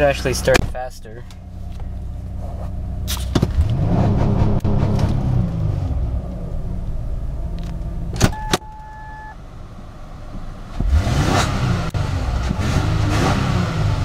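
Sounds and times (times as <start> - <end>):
car engine revving: 1.9 - 9.3, 10.6 - 14.0
short beep: 8.3 - 9.4.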